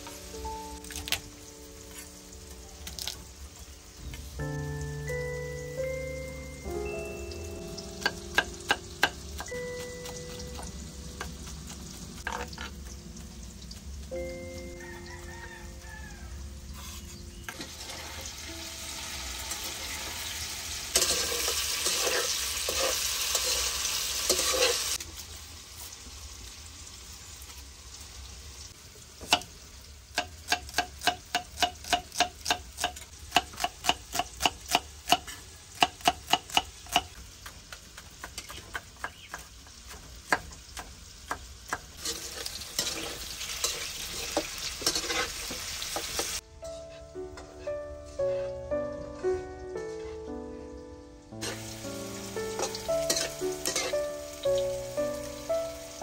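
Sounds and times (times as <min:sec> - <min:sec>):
metal spatula scraping wok: 0:12.2 - 0:12.8, 0:16.7 - 0:18.4, 0:19.3 - 0:25.0, 0:42.0 - 0:48.6, 0:51.4 - 0:51.8, 0:52.5 - 0:54.0
tofu sizzling in oil: 0:17.3 - 0:46.4, 0:51.4 - 0:56.0.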